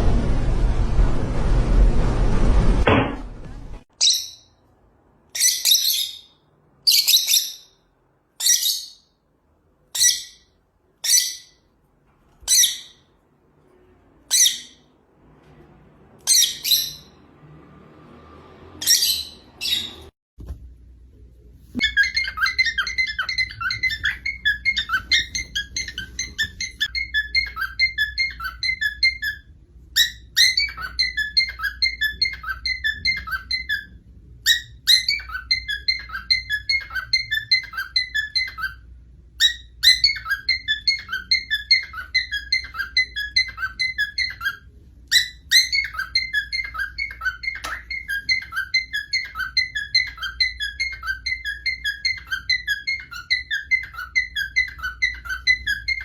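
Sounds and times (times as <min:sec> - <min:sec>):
parrot whistling and chirping: 0:03.9 - 0:04.6, 0:05.3 - 0:09.2, 0:09.9 - 0:11.7, 0:12.4 - 0:13.1, 0:14.3 - 0:14.9, 0:16.2 - 0:17.3, 0:18.7 - 0:20.1, 0:21.8 - 0:56.0.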